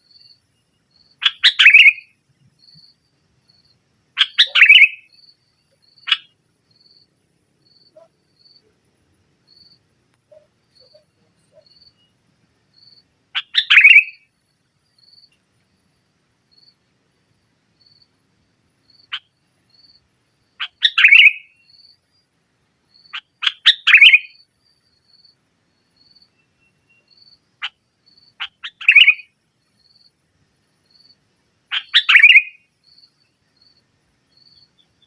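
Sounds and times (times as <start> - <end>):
bulbul singing: 1.0 - 2.9, 4.2 - 6.3, 20.6 - 21.9, 26.0 - 29.3.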